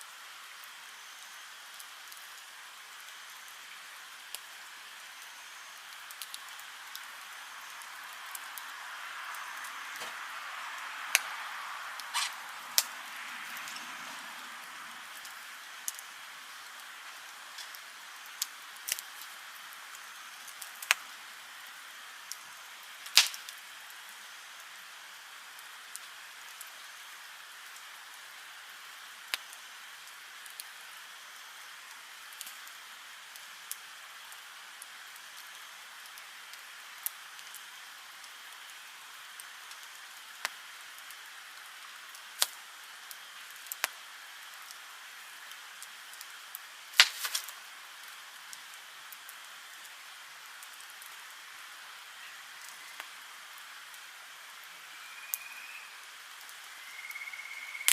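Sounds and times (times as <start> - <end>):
campfire crackling: 0.0 - 55.2, 55.8 - 57.9
fire popping: 5.2 - 21.2, 22.2 - 23.7, 41.8 - 44.8, 45.5 - 49.2.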